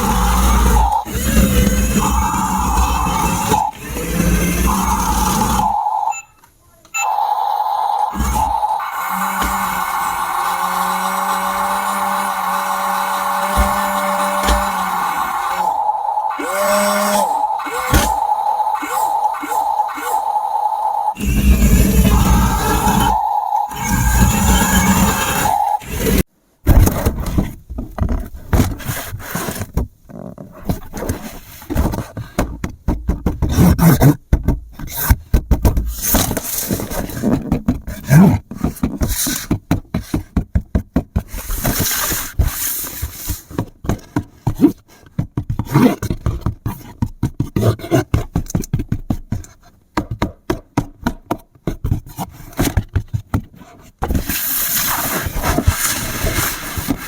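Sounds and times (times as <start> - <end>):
scraping hiss: 0.0 - 6.1, 7.0 - 26.3, 54.2 - 57.0.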